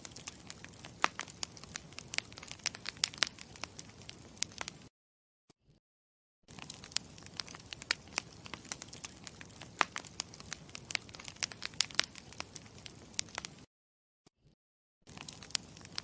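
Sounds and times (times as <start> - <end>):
campfire crackling: 0.0 - 4.9, 6.5 - 13.7, 15.1 - 16.0.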